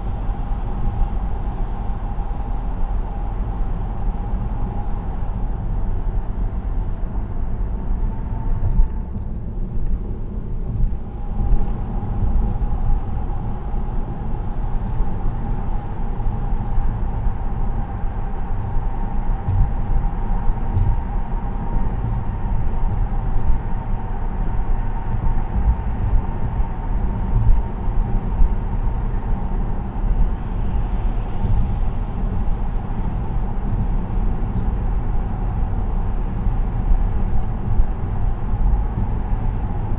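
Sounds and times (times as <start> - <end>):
faint steady whine: 0.0 - 39.9
tyre and road rumble: 0.0 - 39.9
light ticks: 11.5 - 17.2, 20.7 - 21.1, 31.4 - 35.7, 36.3 - 39.9.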